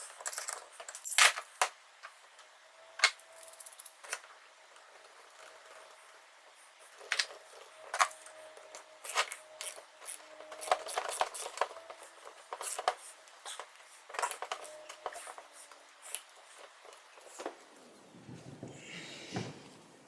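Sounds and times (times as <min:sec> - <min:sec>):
metal parts and tools clicking: 0:00.0 - 0:01.5.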